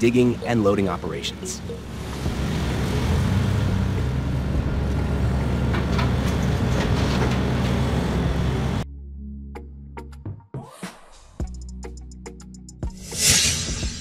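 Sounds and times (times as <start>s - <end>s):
excavator diesel engine running: 0.1s - 8.8s.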